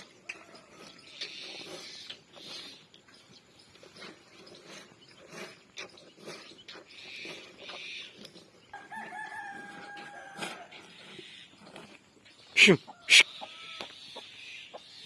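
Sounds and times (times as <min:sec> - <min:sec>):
rooster crowing: 0:08.7 - 0:10.8.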